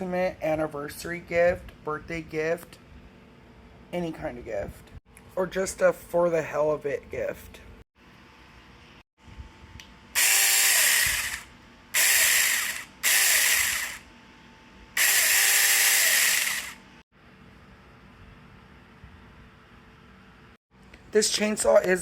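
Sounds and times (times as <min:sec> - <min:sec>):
mini chainsaw motor running: 0:10.2 - 0:14.1, 0:15.0 - 0:16.9.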